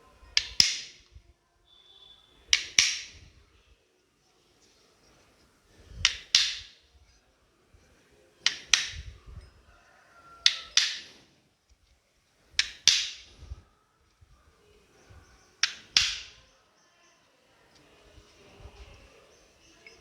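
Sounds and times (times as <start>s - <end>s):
hand tool clicks: 0.4s - 1.1s, 2.5s - 3.2s, 6.0s - 6.9s, 8.4s - 9.2s, 10.4s - 11.2s, 12.6s - 13.4s, 15.6s - 16.4s.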